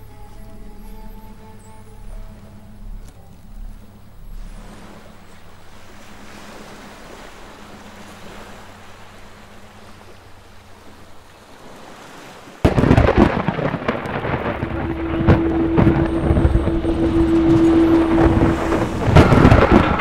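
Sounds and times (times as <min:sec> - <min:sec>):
crackling rain: 0:12.6 - 0:20.0
thunder crash: 0:12.6 - 0:20.0.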